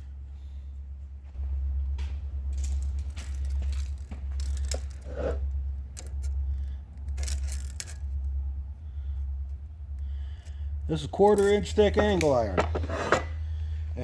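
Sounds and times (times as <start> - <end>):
steady low hum: 0.0 - 14.0
tape measure and steel clicking: 7.0 - 8.2.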